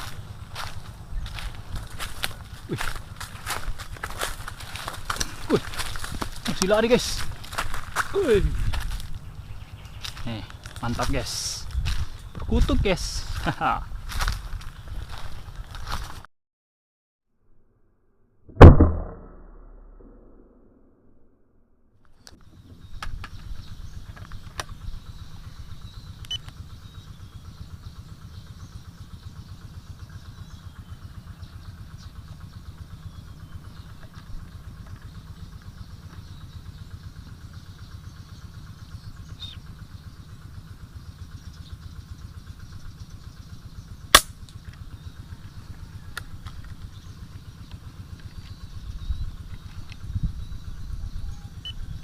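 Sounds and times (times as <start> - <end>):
engine idling with pulsing throb: 0.0 - 16.2, 22.3 - 52.0
air rifle shot: 18.5 - 20.3, 44.2 - 44.4.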